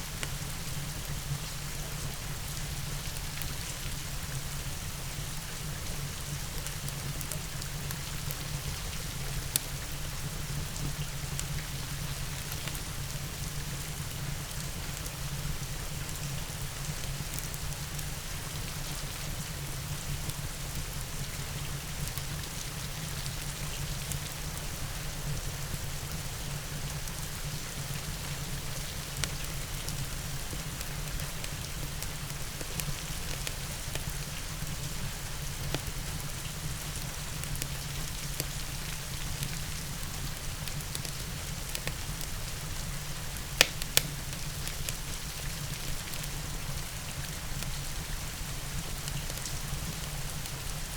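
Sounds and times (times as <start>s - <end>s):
steady rain hiss: 0.0s - 50.9s
fireplace crackling and popping: 31.0s - 34.7s, 39.4s - 46.6s.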